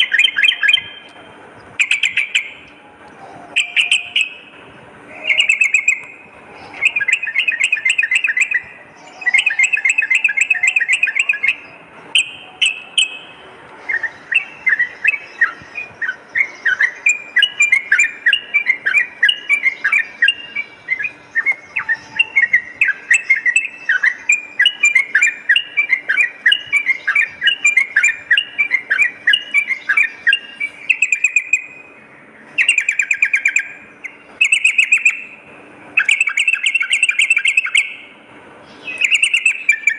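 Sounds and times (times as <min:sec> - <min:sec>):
bulbul song: 0:00.0 - 0:39.9.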